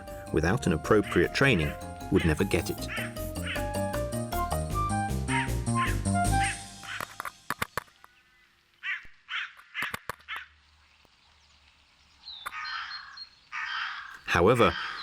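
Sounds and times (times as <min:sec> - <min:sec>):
crow cawing: 0:02.8 - 0:03.8, 0:05.3 - 0:07.2, 0:08.8 - 0:10.4, 0:12.5 - 0:15.0.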